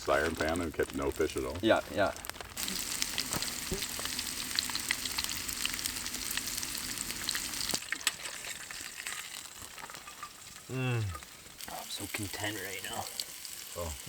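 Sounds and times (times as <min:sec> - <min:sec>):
fish sizzling in a pan: 0:00.0 - 0:14.0.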